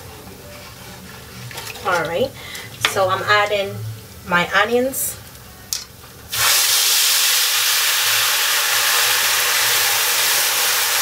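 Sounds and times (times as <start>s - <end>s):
onions sizzling in hot oil: 6.2s - 11.0s.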